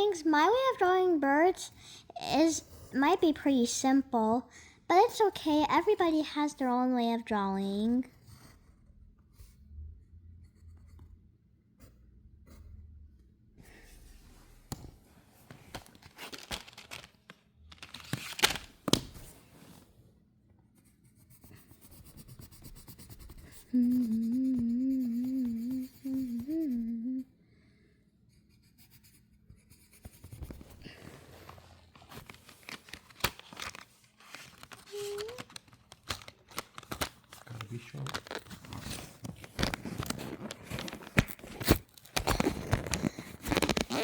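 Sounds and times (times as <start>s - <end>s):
pencil scratching on paper: 8.0s - 9.6s, 11.8s - 12.8s, 20.7s - 26.9s, 28.3s - 31.8s
person humming: 23.6s - 27.3s.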